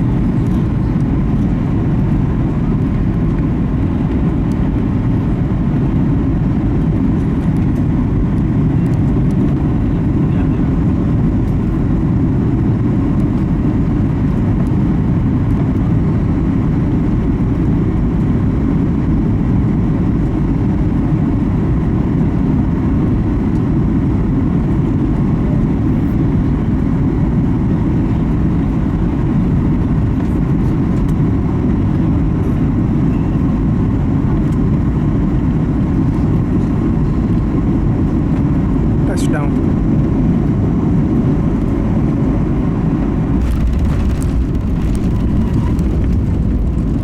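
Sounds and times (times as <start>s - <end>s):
airplane cabin engine noise: 0.0s - 47.0s
rush of airflow: 40.7s - 47.0s.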